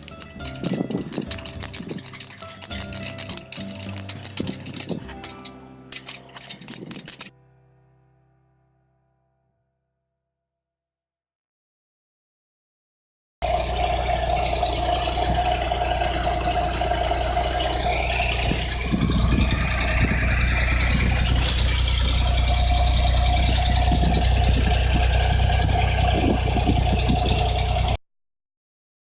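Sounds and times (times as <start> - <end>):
car engine idling: 13.4 - 28.0.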